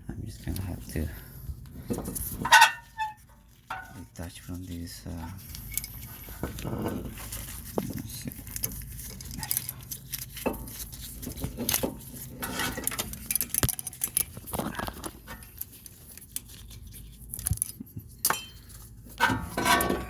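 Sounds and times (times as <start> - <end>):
rustling: 0.4 - 20.0
metal brake parts clattering: 18.2 - 20.0.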